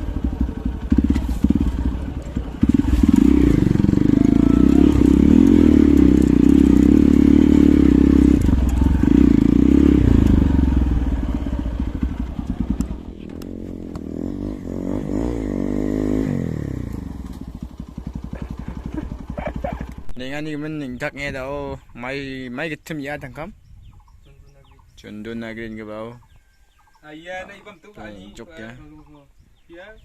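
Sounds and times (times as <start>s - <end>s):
motorcycle engine revving and idling: 0.0s - 21.1s.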